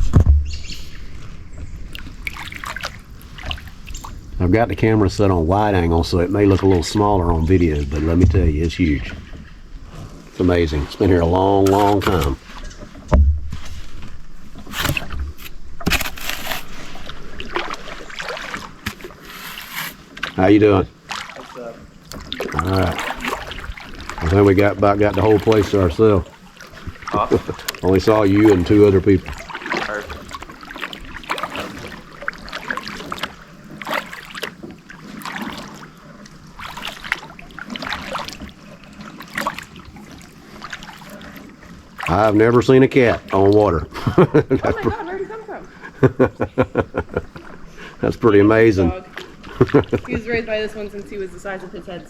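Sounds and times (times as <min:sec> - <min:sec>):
low thump: 0:00.0 - 0:01.7, 0:08.2 - 0:08.7, 0:13.0 - 0:16.0
paddle strokes splashing in water: 0:00.0 - 0:52.0.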